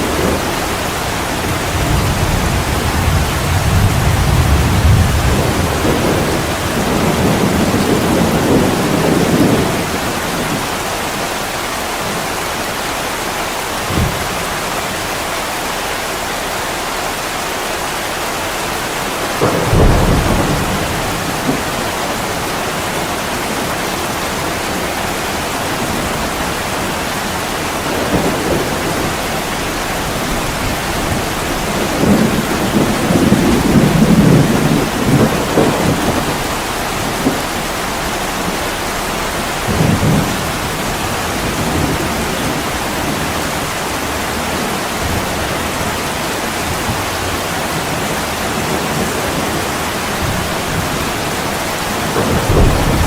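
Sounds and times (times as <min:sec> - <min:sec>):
thunder rumbling: 0:00.0 - 0:16.3, 0:18.0 - 0:53.0
heavy rain on window glass: 0:00.0 - 0:53.0
sharp thunder thud: 0:13.8 - 0:14.6, 0:19.4 - 0:22.9, 0:52.1 - 0:53.0.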